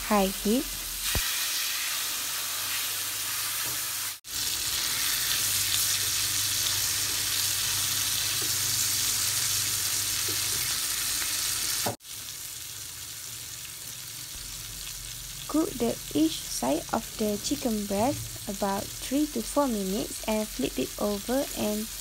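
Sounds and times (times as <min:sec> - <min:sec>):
chicken sizzling in a pan: 0:00.2 - 0:22.0.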